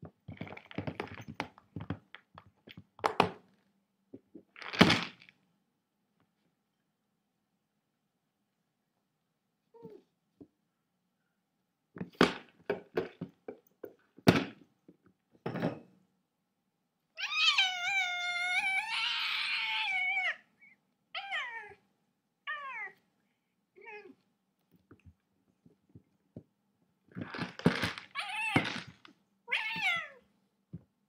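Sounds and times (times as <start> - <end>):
cat meowing: 17.2 - 20.5, 21.2 - 21.8, 29.5 - 30.2.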